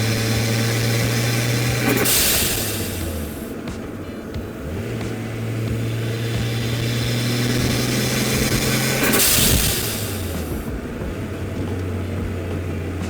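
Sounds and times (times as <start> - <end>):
blow-off valve hiss: 0.0 - 3.6, 5.3 - 10.7
car engine revving: 0.0 - 13.0.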